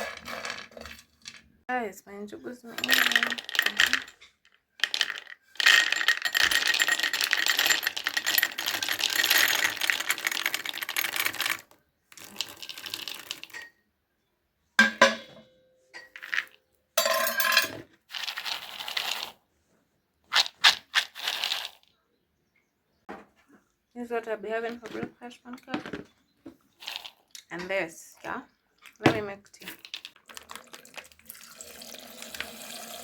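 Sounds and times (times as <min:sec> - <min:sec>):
peanuts rattling in a pan: 0:02.8 - 0:13.6, 0:16.2 - 0:19.4, 0:20.3 - 0:21.9, 0:26.7 - 0:27.5, 0:29.6 - 0:33.0.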